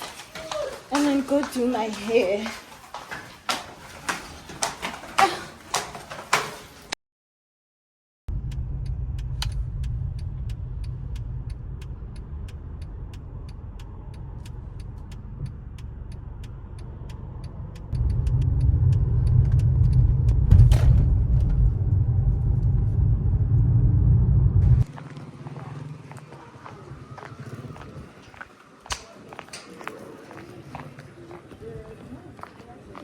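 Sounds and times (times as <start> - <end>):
fast even ticking: 8.3 - 20.4
car road and engine rumble: 8.3 - 28.8.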